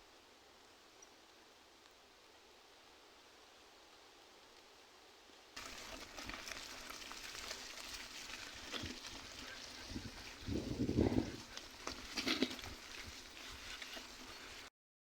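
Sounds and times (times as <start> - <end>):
bike tyres rolling on gravel: 5.6 - 14.7.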